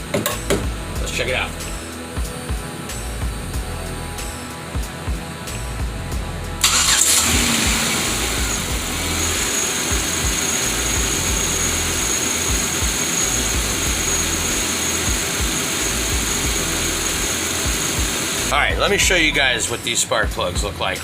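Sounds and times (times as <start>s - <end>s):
high whine: 0.0s - 21.0s
car engine starting and idling: 5.6s - 21.0s.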